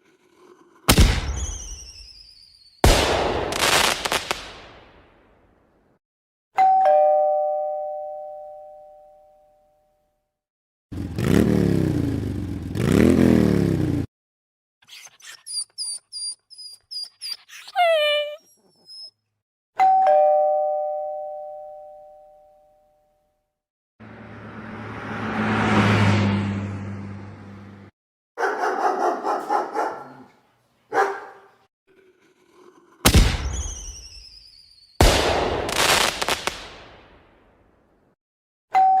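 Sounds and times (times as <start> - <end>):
two-tone doorbell chime: 6.6 - 10.0, 19.8 - 23.2, 38.8 - 39.0.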